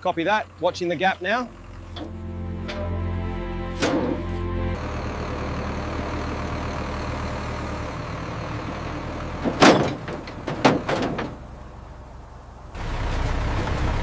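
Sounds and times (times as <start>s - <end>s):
heavy vehicle engine running: 0.0s - 14.0s
heavy metal part knocks: 9.4s - 11.4s.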